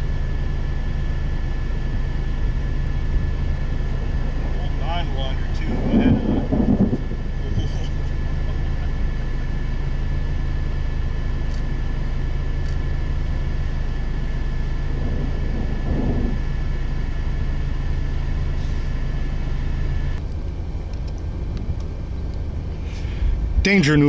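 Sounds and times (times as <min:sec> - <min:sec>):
high whine: 0:00.0 - 0:24.0
vehicle engine humming: 0:00.0 - 0:24.0.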